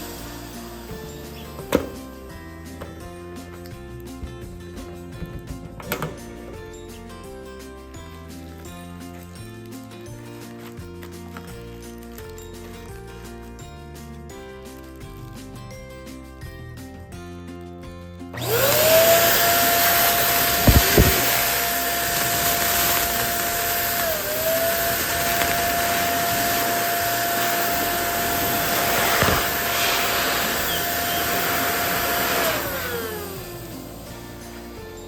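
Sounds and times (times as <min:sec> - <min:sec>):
electric balloon pump running: 0:00.0 - 0:06.7, 0:18.4 - 0:35.0.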